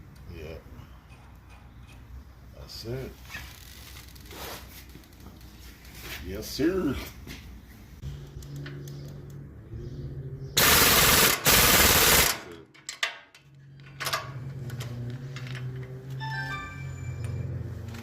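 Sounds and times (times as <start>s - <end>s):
air impact wrench rattling: 10.6s - 12.4s.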